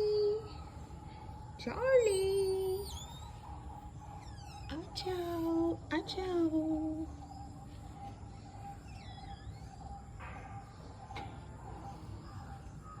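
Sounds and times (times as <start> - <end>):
faint bird chirp: 0.0 - 13.0.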